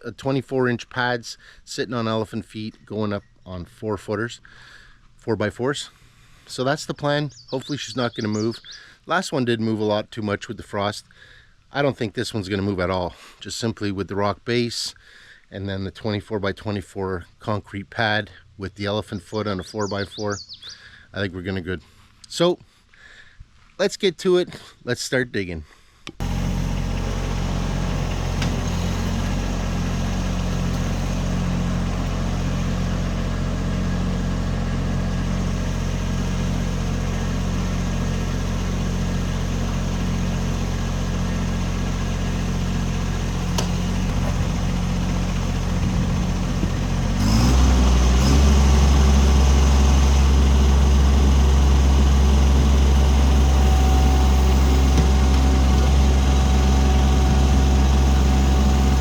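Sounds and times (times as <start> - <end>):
diesel tractor engine running: 26.2 - 59.0.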